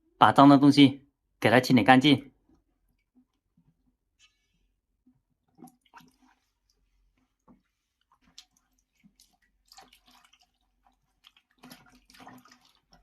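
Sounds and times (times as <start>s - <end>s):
squishing scrubbing of wet dirt: 5.5s - 13.0s.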